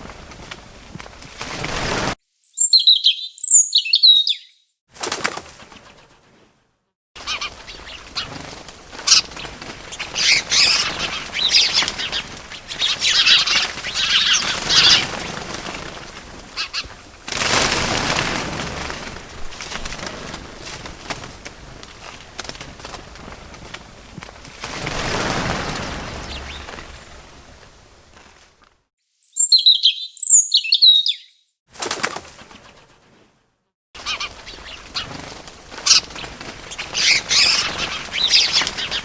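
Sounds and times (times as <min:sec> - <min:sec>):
wings flapping and rustling: 0:00.0 - 0:02.2, 0:04.9 - 0:28.9, 0:31.7 - 0:33.4, 0:34.0 - 0:39.0
small birds chirping: 0:02.3 - 0:04.7, 0:07.2 - 0:17.0, 0:24.7 - 0:27.6, 0:29.1 - 0:31.5, 0:34.0 - 0:39.0.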